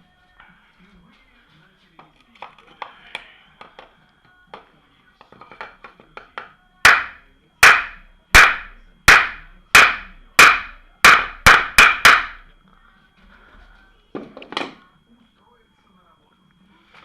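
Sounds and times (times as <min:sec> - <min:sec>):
hammer striking metal: 0:06.4 - 0:12.5.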